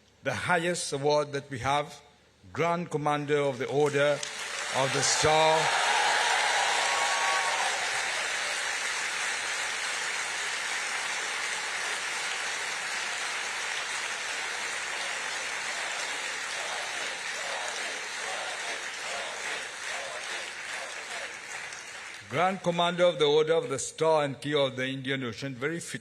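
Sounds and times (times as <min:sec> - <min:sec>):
audience applauding: 0:04.2 - 0:22.6.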